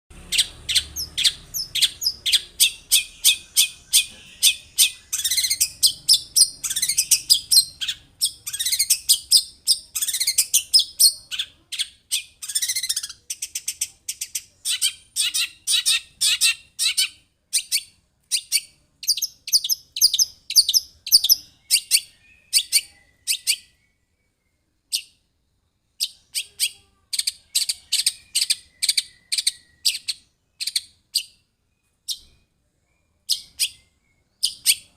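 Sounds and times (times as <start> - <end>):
shrike singing rapid high chirps: 0.1 - 11.6.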